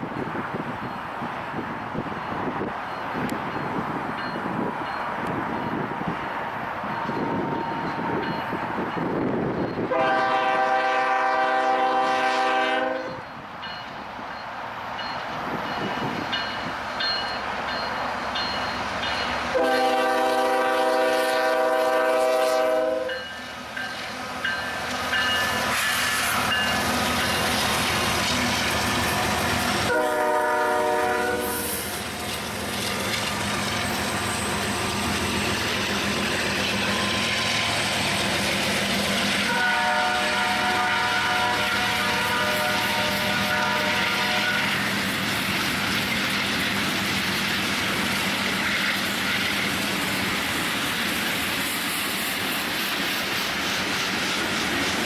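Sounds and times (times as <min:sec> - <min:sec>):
train rumbling: 0:00.0 - 0:55.0
train air horn blasts: 0:09.8 - 0:13.3, 0:19.5 - 0:23.3, 0:29.3 - 0:32.0, 0:39.4 - 0:44.9.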